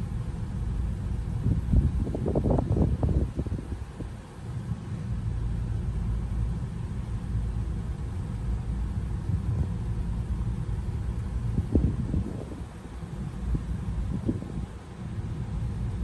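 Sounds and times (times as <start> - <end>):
car engine idling: 0.0 - 3.1, 4.3 - 16.0.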